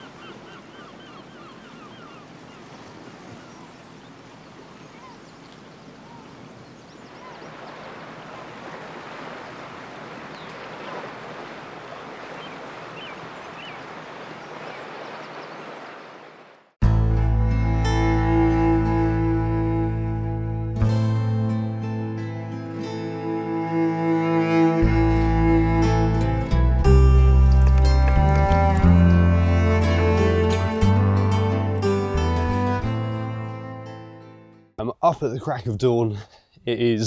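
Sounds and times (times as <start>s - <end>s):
birds calling: 0.0s - 16.7s, 27.2s - 29.2s
sea surf washing on shore: 2.1s - 16.7s, 27.3s - 29.2s.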